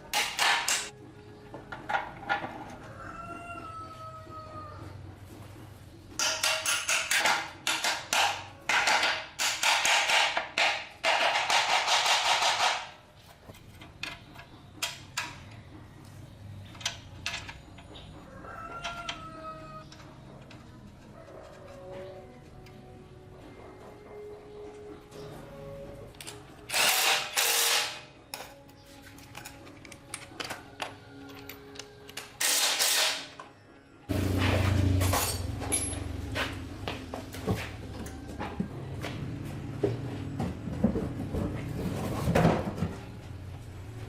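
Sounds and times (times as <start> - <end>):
rooster crowing: 2.7 - 5.0, 18.2 - 19.9.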